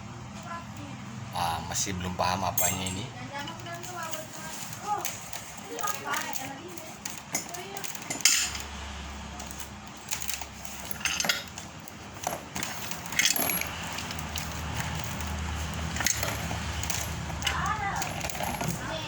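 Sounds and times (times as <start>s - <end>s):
metal parts clinking and knocking: 2.4s - 8.7s, 9.4s - 19.0s.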